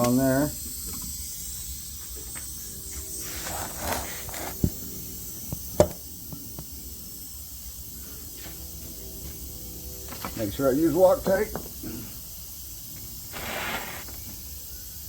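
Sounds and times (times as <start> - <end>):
steady hiss: 0.0 - 15.0
short rustle: 13.3 - 14.2.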